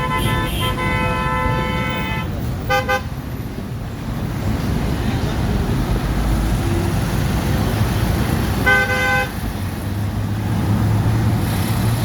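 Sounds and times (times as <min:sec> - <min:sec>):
vehicle horn honking: 0:00.0 - 0:03.1, 0:08.6 - 0:09.4
rumble of engines and traffic: 0:00.0 - 0:12.0.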